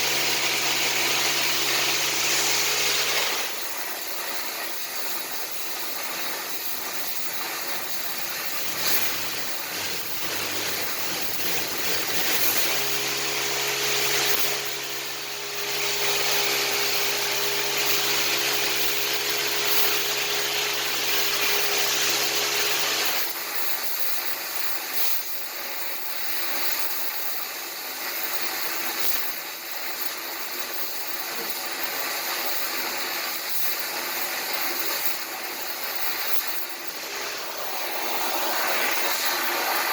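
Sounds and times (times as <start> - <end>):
welding arc sizzling: 0.0 - 39.9
steady machine hum: 36.8 - 39.9.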